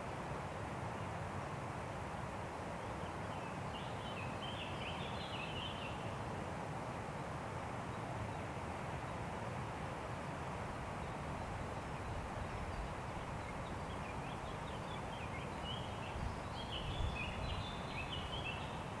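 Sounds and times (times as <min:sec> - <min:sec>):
wind through forest: 0:00.0 - 0:19.0
songbird chirping: 0:12.0 - 0:18.9.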